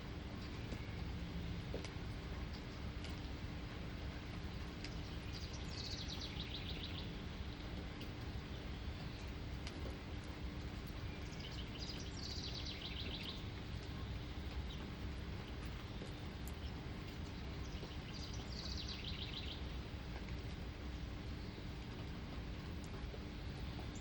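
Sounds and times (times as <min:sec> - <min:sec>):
outdoor background hiss: 0:00.0 - 0:24.0
songbird trilling: 0:11.1 - 0:13.4.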